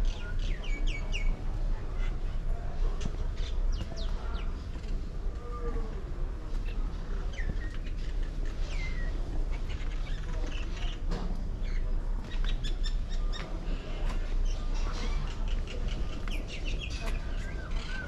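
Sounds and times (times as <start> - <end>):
birds chirping and calling: 0.0 - 5.0, 6.5 - 18.0.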